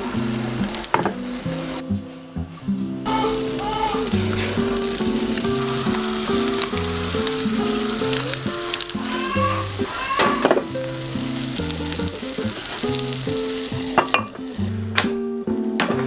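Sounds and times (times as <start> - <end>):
food sizzling in a pan: 0.0 - 15.8
utensil knocking: 3.1 - 11.0, 12.1 - 15.2.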